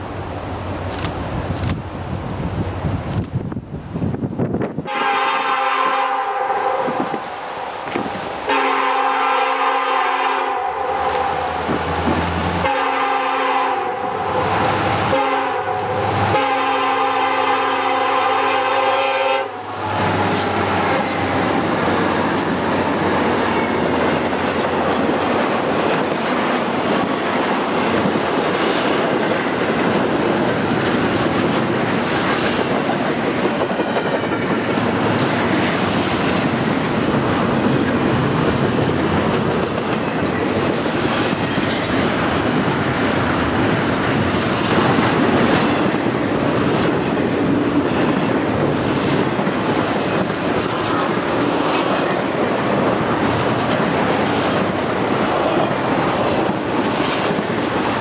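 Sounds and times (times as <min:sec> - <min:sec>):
freight train rumbling past: 0:00.0 - 0:58.0
locomotive air horn blasts: 0:04.9 - 0:07.0, 0:08.5 - 0:11.6, 0:12.6 - 0:19.7.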